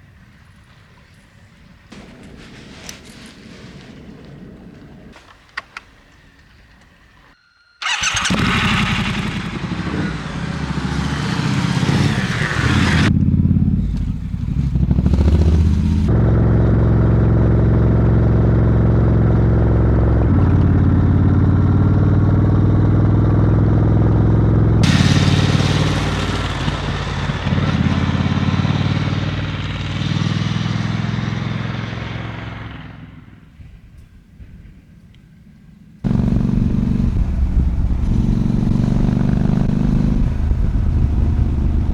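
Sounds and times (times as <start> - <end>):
motorcycle engine running: 7.8 - 33.4, 36.0 - 41.9.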